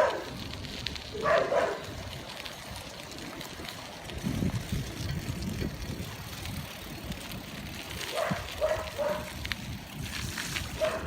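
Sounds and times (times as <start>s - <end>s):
dog barking: 0.0s - 0.3s, 1.2s - 1.9s, 8.1s - 9.3s, 10.8s - 11.0s.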